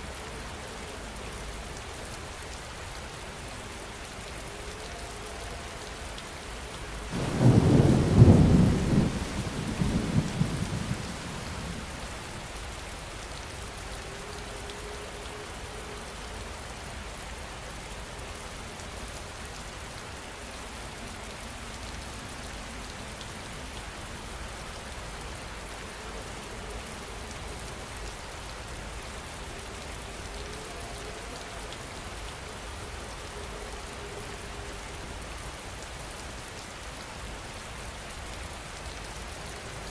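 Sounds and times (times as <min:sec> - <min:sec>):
heavy rain: 0:00.0 - 0:39.9
thunderclap rumbling: 0:07.1 - 0:12.5.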